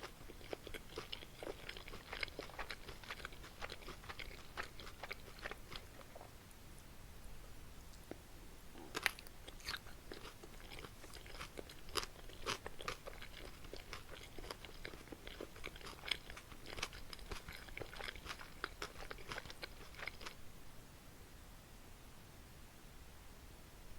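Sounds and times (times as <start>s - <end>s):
wet chewing and crunching: 0.0s - 6.3s, 8.8s - 20.5s.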